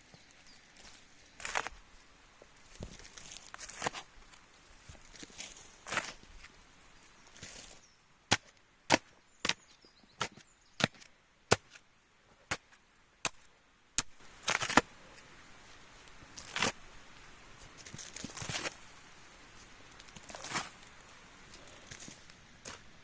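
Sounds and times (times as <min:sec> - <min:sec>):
crunching rustle: 0:00.0 - 0:07.9, 0:14.2 - 0:23.0.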